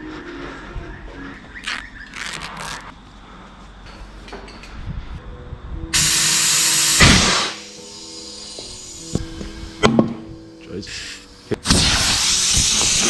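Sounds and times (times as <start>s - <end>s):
compressed air hissing: 6.0s - 13.0s.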